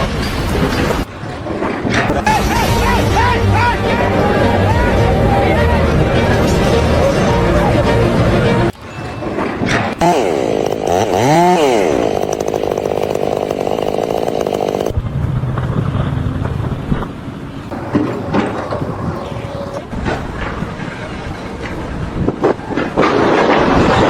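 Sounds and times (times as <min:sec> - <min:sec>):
rough running machine: 0:00.0 - 0:15.1, 0:17.4 - 0:21.6
small engine revving: 0:09.2 - 0:15.0.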